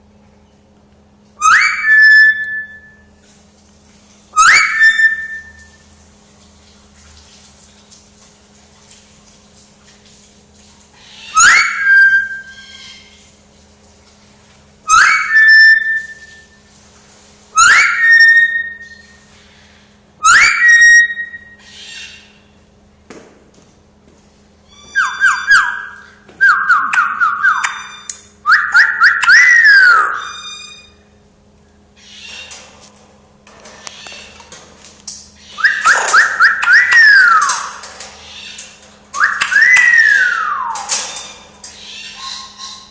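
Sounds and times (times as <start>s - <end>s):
parrot whistling: 1.4s - 3.1s, 4.4s - 5.8s, 11.2s - 13.1s, 14.9s - 16.6s, 17.6s - 19.2s, 20.2s - 22.3s, 24.7s - 31.0s, 35.4s - 42.9s.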